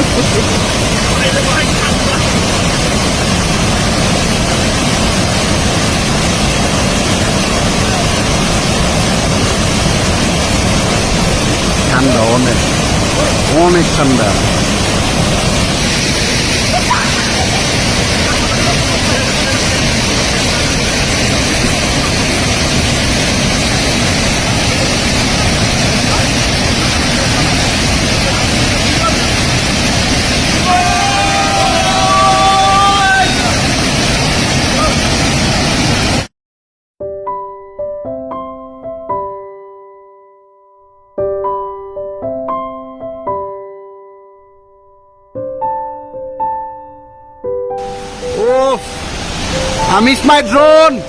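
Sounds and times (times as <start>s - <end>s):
waterfall rushing: 0.0s - 36.3s, 47.8s - 51.0s.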